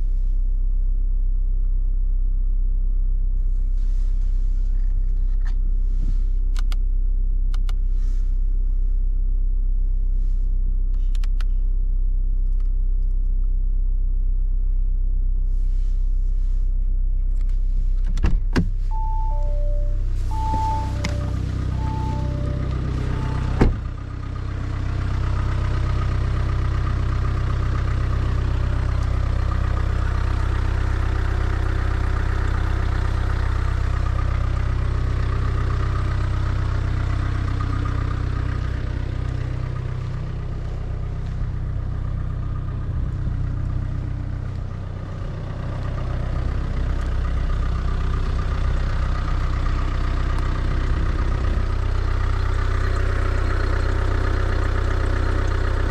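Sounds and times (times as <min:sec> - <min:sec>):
diesel engine idling: 0:18.7 - 0:55.9
short chime: 0:18.9 - 0:23.6
thunk: 0:23.6 - 0:23.8.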